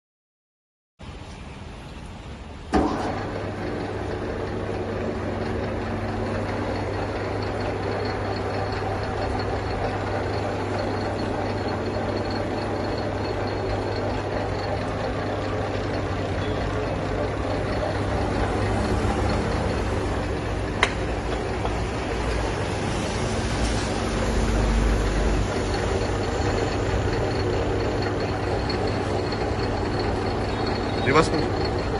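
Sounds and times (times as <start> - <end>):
lathe motor humming: 2.7 - 31.9
lathe starting knock: 2.7 - 31.9.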